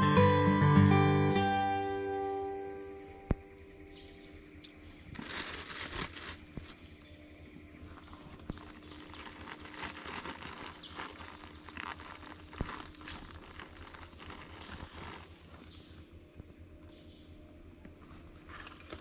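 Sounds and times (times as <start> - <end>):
high-pitched insect chorus: 0.0 - 19.0
soft rustles and clicks: 5.0 - 6.8, 7.8 - 16.0.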